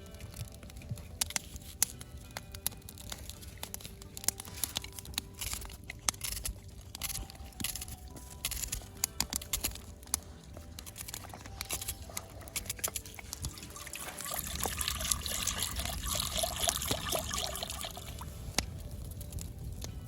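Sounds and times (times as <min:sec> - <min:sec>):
water pouring into a pot: 0:13.3 - 0:18.4.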